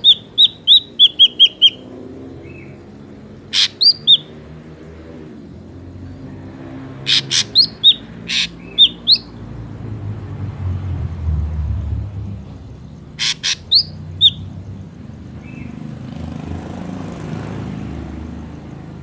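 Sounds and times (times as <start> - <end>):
bird whistling and rasping: 0.0 - 2.8, 3.5 - 4.4, 7.0 - 9.4, 13.2 - 14.5.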